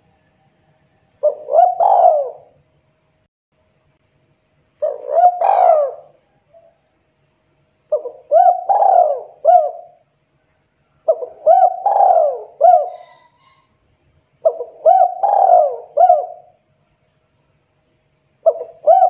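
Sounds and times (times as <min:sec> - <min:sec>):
dove cooing: 0:01.2 - 0:02.6, 0:04.8 - 0:06.8, 0:07.9 - 0:10.0, 0:11.0 - 0:13.7, 0:14.4 - 0:16.6, 0:18.4 - 0:19.0.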